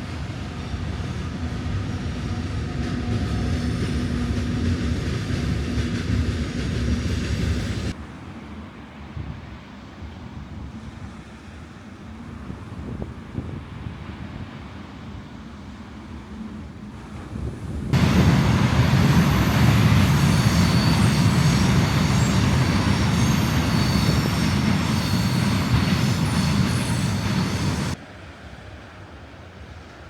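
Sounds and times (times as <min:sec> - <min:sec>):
train rumbling past: 0:00.0 - 0:30.0
high-pitched wheel squeals: 0:18.0 - 0:28.0.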